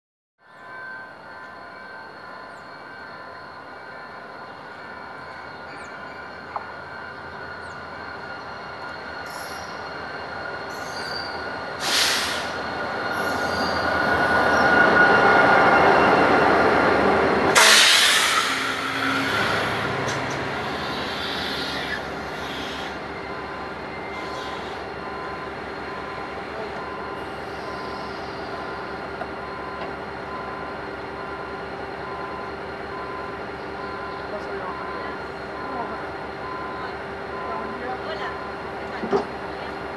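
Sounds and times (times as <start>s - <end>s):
diesel locomotive passing: 0.4s - 39.9s
loud hiss: 11.8s - 12.6s, 17.6s - 19.8s.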